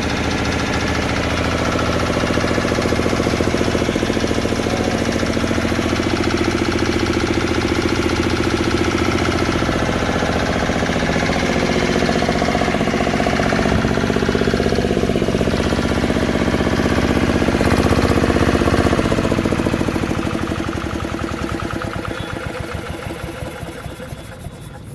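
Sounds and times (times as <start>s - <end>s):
diesel engine chugging: 0.0s - 24.9s.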